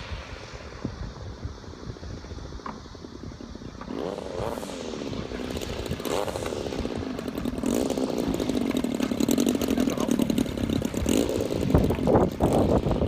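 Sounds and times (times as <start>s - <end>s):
model plane engine passing: 3.6s - 13.0s.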